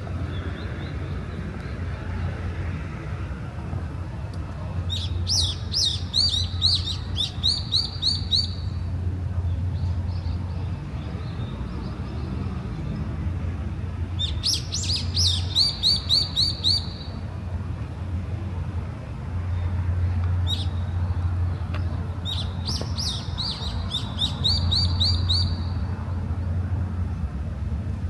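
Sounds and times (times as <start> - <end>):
songbird singing trills: 4.9 - 8.9, 14.2 - 17.2, 22.2 - 25.9.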